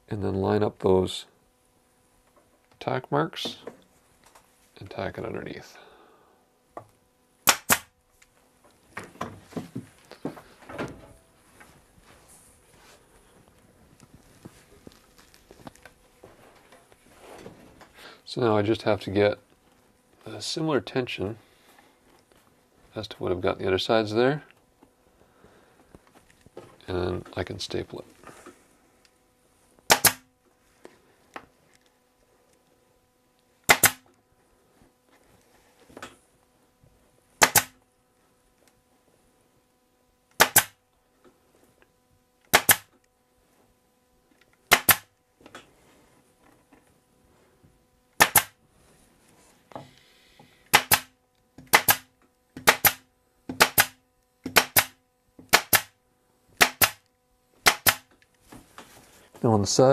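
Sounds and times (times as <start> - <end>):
pneumatic stapler shots: 7.4 - 7.9, 29.9 - 30.3, 33.7 - 34.1, 37.4 - 37.8, 40.4 - 40.8, 42.5 - 43.0, 44.7 - 45.1, 48.2 - 48.6, 50.7 - 56.0, 56.6 - 58.1.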